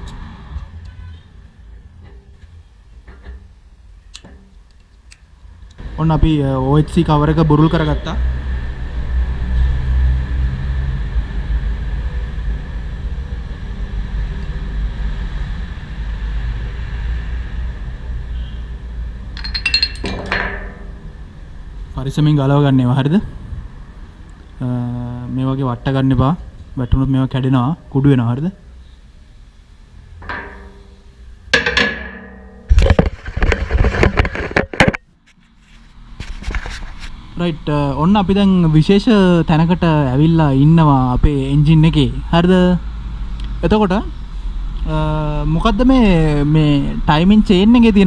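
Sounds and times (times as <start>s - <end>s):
metal parts clinking and clattering: 19.4s - 21.1s
ringing metallic knocks: 19.4s - 21.3s, 30.2s - 33.2s.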